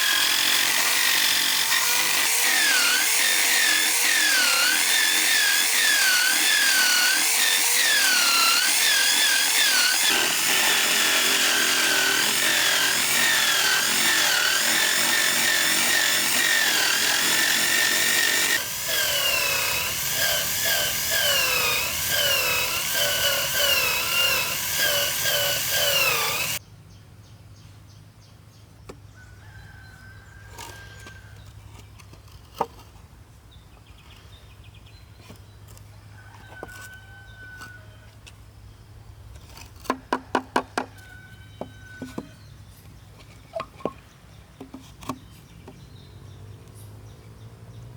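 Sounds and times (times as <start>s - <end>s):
power tool cutting bamboo: 0.0s - 26.6s.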